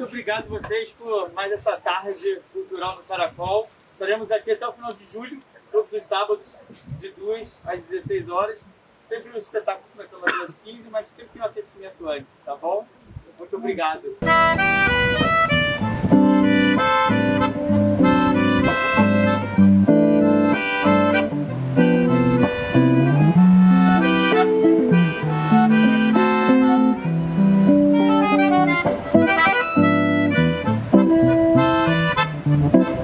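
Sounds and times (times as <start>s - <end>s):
guitar: 14.2s - 33.0s
piano accordion playing: 14.2s - 33.0s.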